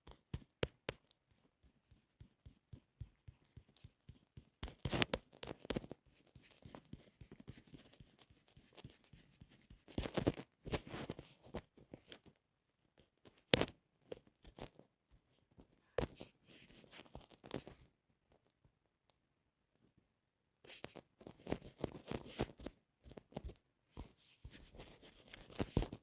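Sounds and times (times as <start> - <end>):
close-up rustling and scratching: 0.0 - 18.6, 20.6 - 26.0.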